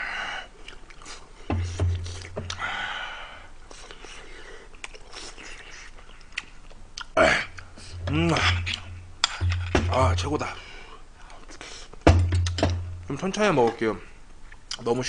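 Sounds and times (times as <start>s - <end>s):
person chewing: 0.6s - 2.6s, 3.7s - 9.8s, 11.2s - 12.6s.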